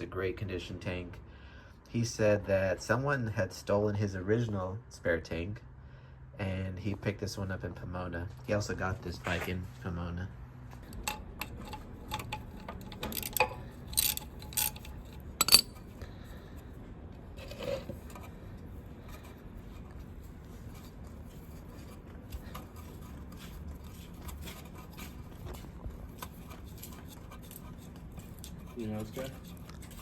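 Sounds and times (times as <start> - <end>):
metal tools clinking: 10.9 - 15.9.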